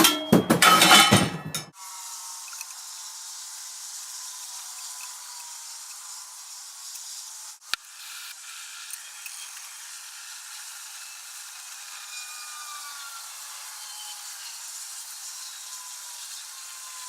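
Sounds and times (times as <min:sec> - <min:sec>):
torch flame hissing: 0:02.4 - 0:12.0.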